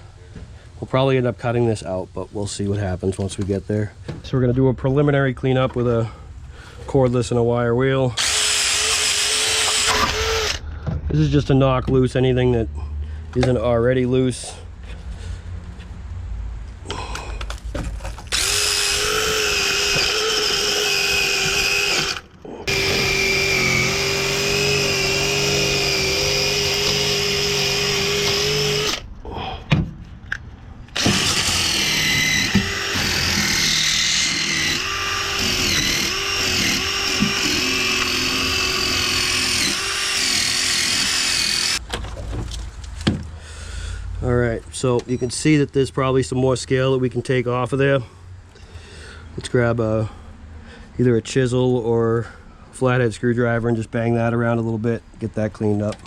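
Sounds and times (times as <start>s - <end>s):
power tool wire wheel grinding: 8.2s - 10.6s, 18.1s - 29.1s, 30.9s - 41.8s.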